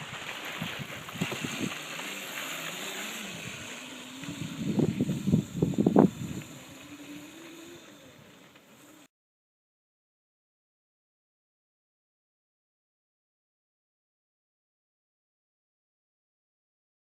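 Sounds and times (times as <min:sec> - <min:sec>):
wind buffeting microphone: 0:00.0 - 0:01.8, 0:03.2 - 0:07.1
electric motor whining: 0:00.9 - 0:09.1.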